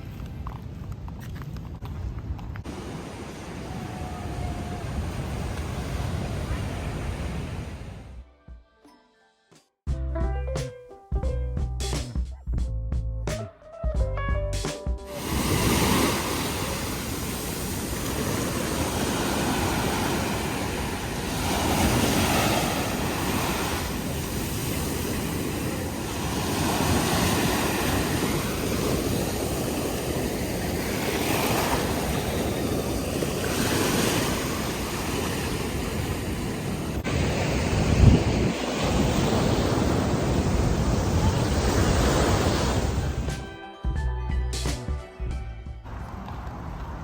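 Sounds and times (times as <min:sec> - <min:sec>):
ocean surf washing: 0:02.6 - 0:08.2, 0:15.1 - 0:43.4
wind noise on microphone: 0:15.2 - 0:43.4.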